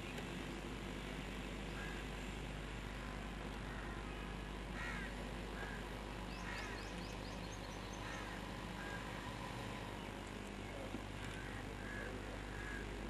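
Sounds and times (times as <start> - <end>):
steady low hum: 0.0 - 13.0
birds chirping: 4.8 - 12.9.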